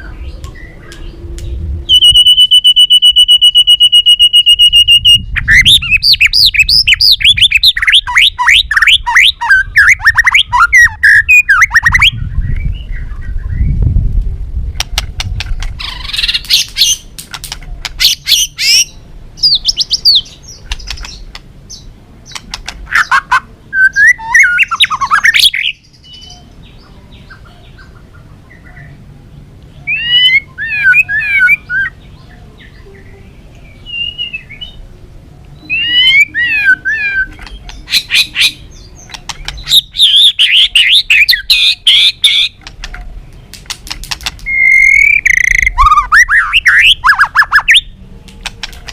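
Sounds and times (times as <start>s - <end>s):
bird whistled phrases: 1.9s - 13.7s, 22.9s - 26.5s, 29.8s - 32.0s, 33.8s - 34.8s, 35.6s - 38.6s, 39.2s - 42.5s, 44.4s - 47.9s
bird clicking chatter: 14.8s - 18.0s, 20.6s - 21.5s, 22.3s - 23.2s, 39.0s - 39.9s, 41.9s - 45.7s, 48.3s - 48.9s.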